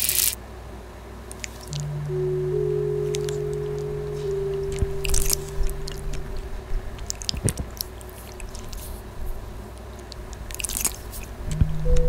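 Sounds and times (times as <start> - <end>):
held musical tone: 1.7 - 7.2, 11.5 - 12.0.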